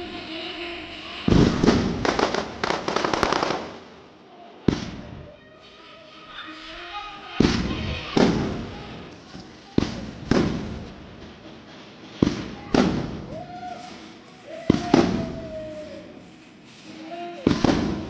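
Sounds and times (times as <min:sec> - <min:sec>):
fireworks bangs with echo: 0:01.2 - 0:05.4, 0:07.3 - 0:16.2, 0:17.2 - 0:18.0.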